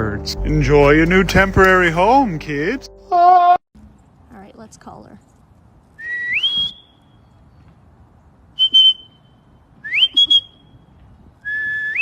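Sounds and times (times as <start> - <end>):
person whistling: 6.0 - 6.9, 8.6 - 9.1, 9.8 - 10.6, 11.4 - 12.0.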